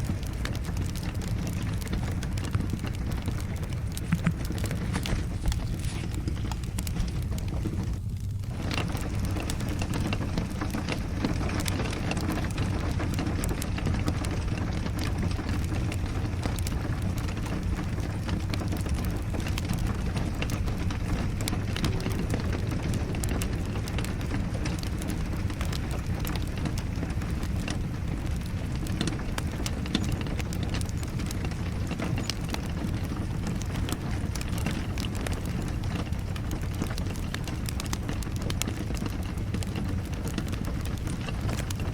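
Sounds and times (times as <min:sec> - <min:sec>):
fireplace crackling and popping: 0:00.0 - 0:41.9
rain rushing: 0:00.0 - 0:41.9.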